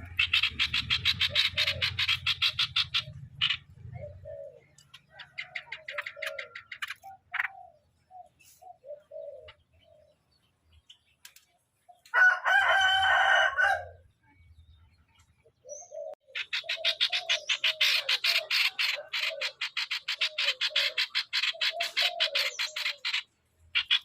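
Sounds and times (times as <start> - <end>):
bird chattering rattles: 0.0 - 7.7, 16.3 - 24.0
rooster crowing: 12.1 - 14.0.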